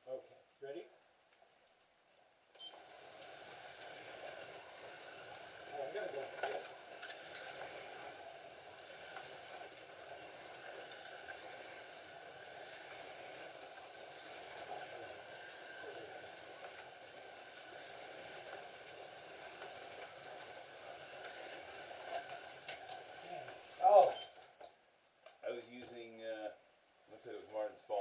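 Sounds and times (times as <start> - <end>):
slot car motors whirring: 2.6 - 24.7.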